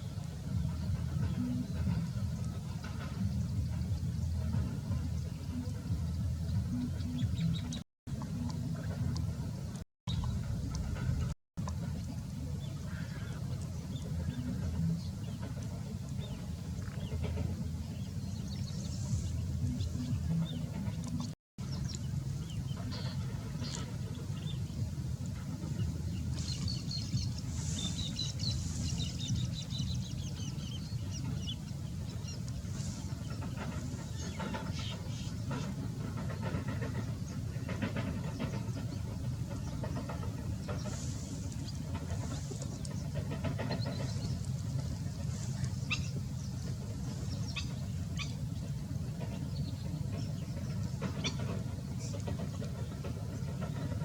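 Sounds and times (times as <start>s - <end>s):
birds chirping: 0.0s - 54.0s
steady low rumble: 0.0s - 54.0s.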